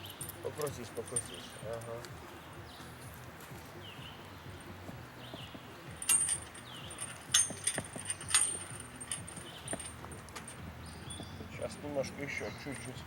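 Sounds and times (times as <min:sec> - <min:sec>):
metallic clinks with jingle: 0:00.0 - 0:02.0, 0:05.9 - 0:13.0.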